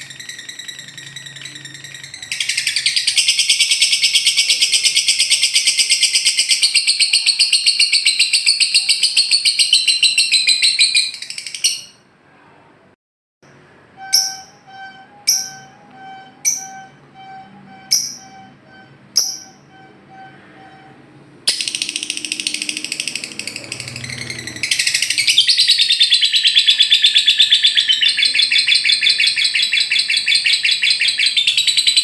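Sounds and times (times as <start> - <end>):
lovebird chattering trill: 0.0 - 12.0, 16.4 - 20.3, 21.5 - 32.0.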